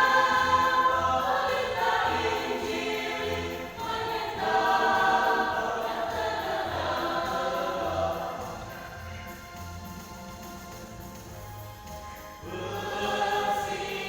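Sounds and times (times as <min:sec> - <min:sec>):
voices singing slow melody: 0:00.0 - 0:14.0.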